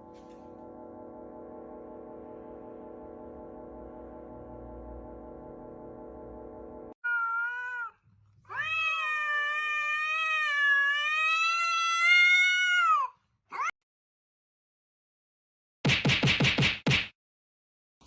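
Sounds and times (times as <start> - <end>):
music: 0.0 - 7.0
cat meowing: 7.0 - 13.7.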